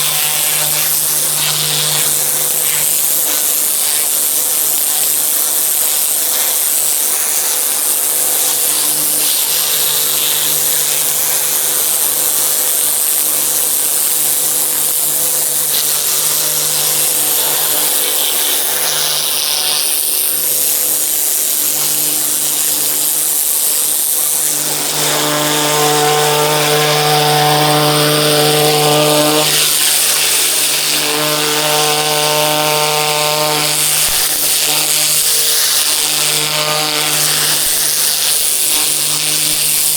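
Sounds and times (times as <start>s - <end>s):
pressure washer jet hissing: 0.0s - 39.9s
machine hum: 8.2s - 39.9s.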